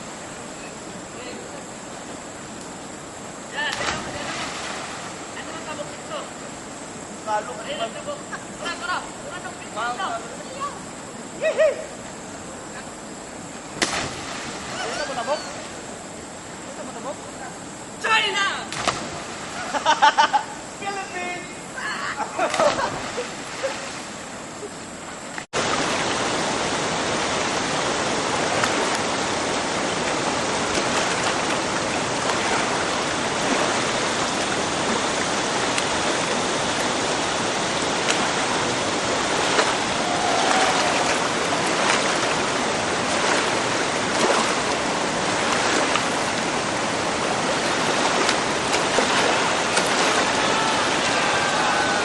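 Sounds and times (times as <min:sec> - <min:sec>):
river rapids rushing: 0:25.6 - 0:52.0.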